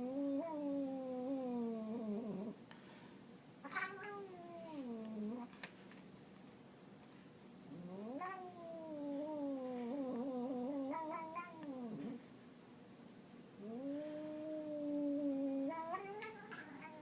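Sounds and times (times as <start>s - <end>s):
cat yowling: 3.6s - 5.4s, 7.8s - 12.0s, 13.6s - 17.0s.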